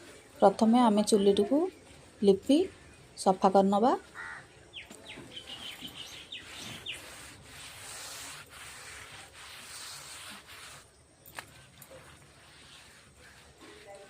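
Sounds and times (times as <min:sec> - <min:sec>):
hand rubbing wet plaster: 0:04.9 - 0:14.0.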